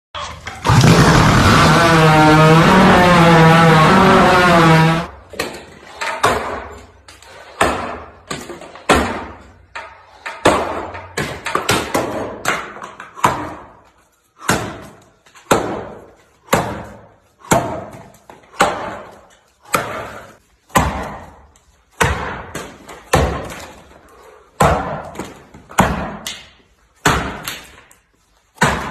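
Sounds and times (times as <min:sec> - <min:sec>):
sharp blows on wood: 0:00.7 - 0:05.1.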